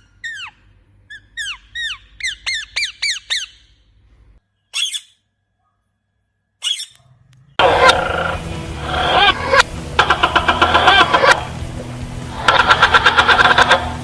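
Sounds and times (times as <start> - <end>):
bird squawking: 4.7 - 5.2, 6.6 - 7.0, 7.6 - 11.6, 12.3 - 14.0.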